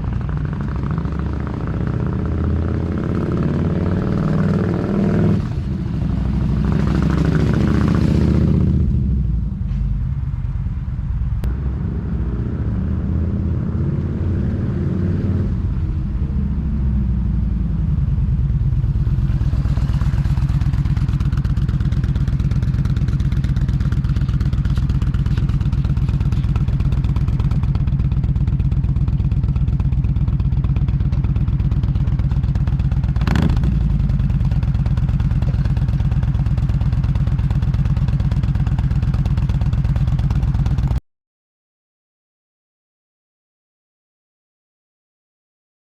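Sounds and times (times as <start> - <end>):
motorcycle engine revving and idling: 0.0 - 41.0.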